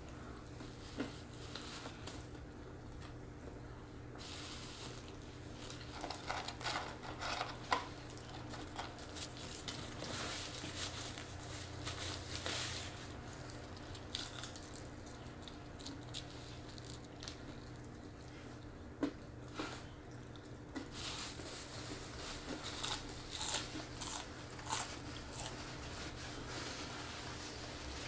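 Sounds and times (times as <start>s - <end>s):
steady low hum: 0.0s - 28.0s
paper wrappers crinkling: 4.3s - 17.6s.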